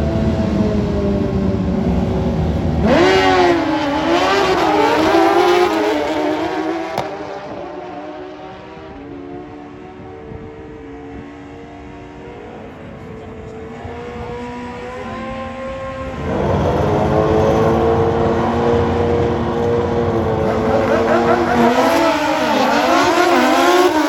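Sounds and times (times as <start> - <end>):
racing motorcycle engine accelerating: 13.9 - 24.0.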